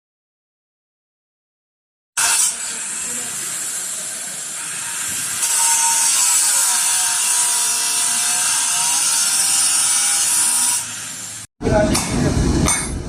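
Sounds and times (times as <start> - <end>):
angle grinder cutting steel: 2.2 - 12.1.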